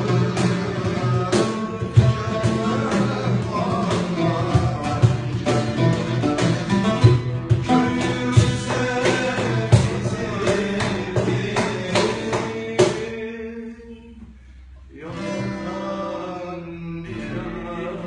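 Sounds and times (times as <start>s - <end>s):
hand drum hits: 0.0s - 13.0s.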